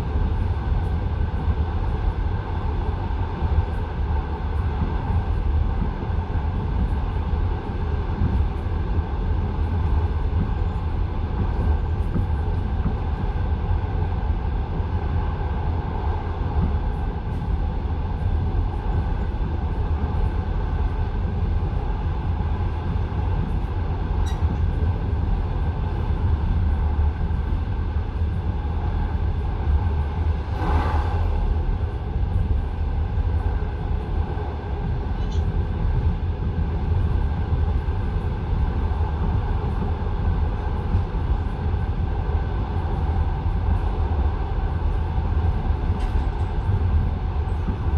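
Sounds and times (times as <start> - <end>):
train rumble inside carriage: 0.0 - 47.9.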